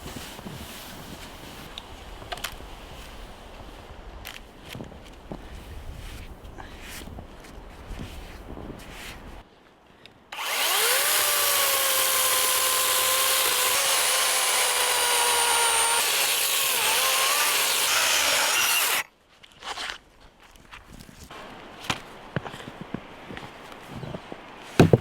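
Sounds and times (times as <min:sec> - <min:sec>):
power tool motor running: 0:10.4 - 0:19.0.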